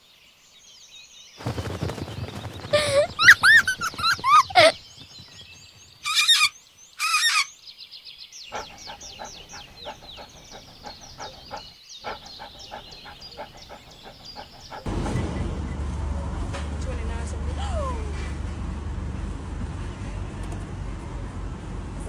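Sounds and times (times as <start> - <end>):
pet birds calling: 2.4 - 7.6, 8.4 - 14.9.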